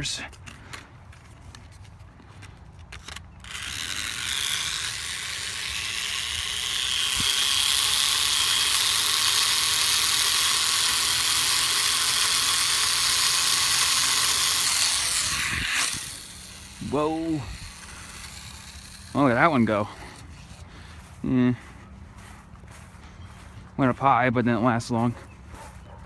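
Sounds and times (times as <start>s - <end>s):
small electric motor and propeller whirring: 0.0s - 23.6s.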